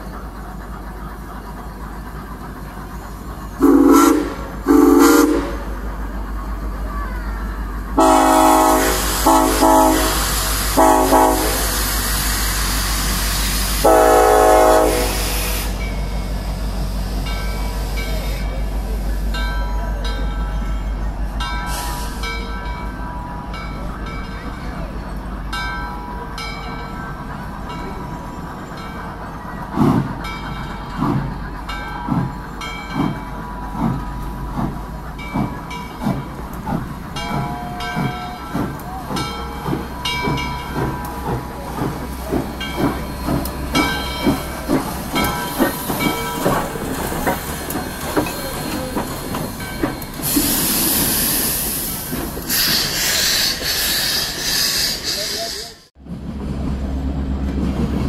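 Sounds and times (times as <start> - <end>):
freight train low rumble: 0.0 - 58.0
loud hiss: 8.4 - 19.3, 50.1 - 55.8
wheels knocking over rail joints: 29.7 - 50.4.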